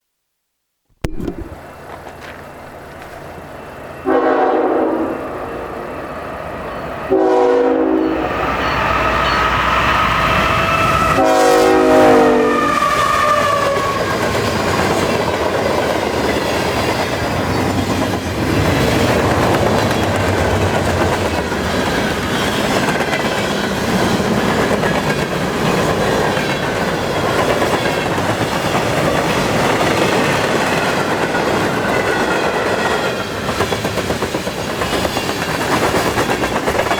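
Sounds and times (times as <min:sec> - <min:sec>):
freight train passing: 0:01.6 - 0:36.9
train horn blasts: 0:04.0 - 0:05.4, 0:07.1 - 0:08.4, 0:11.1 - 0:13.6
wheels clacking on rails: 0:12.7 - 0:36.9.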